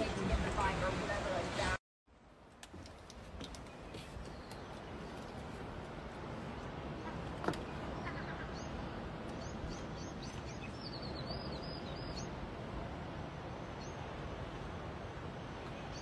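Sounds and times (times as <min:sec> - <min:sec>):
small birds chirping: 0:03.6 - 0:05.4.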